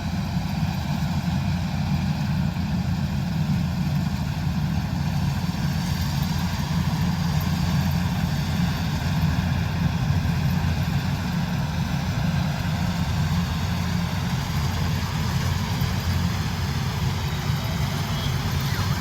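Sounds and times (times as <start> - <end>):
diesel engine droning: 10.4 - 19.0.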